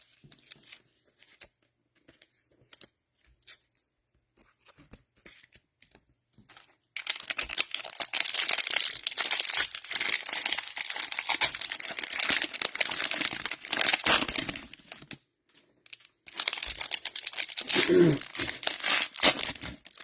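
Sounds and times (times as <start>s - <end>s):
plastic wrappers crinkling: 6.5s - 20.0s.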